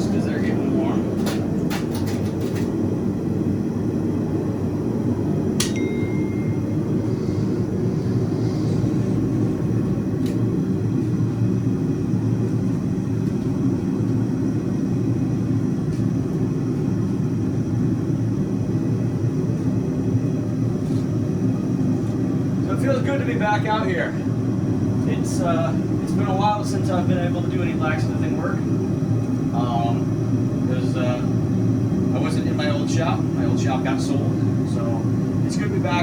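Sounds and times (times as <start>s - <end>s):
metallic ping: 5.6s - 6.8s.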